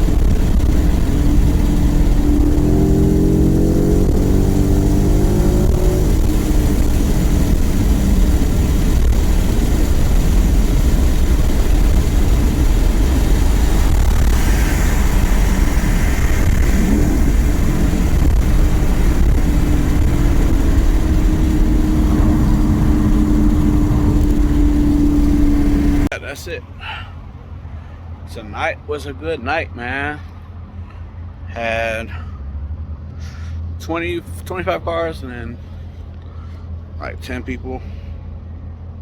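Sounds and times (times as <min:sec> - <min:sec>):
car engine accelerating: 0:00.0 - 0:26.1
road noise: 0:00.0 - 0:39.0.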